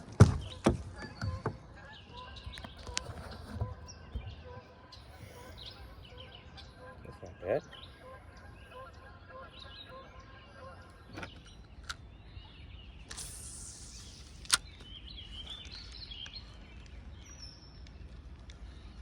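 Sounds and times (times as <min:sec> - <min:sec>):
birds chirping: 0:00.0 - 0:19.0
fishing line hissing off reel: 0:13.1 - 0:14.6.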